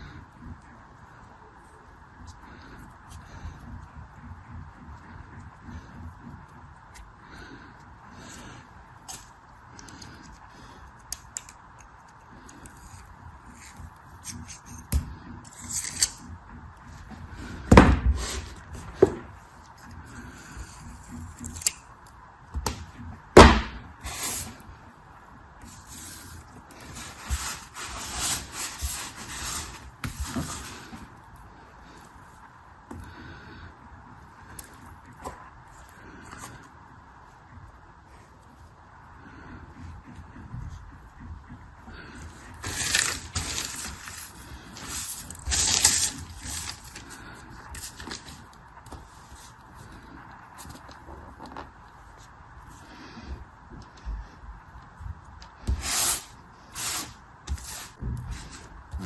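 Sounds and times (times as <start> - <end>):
packaging rustling and scraping: 25.7 - 31.2, 42.5 - 50.0
packaging rustling: 42.6 - 47.2.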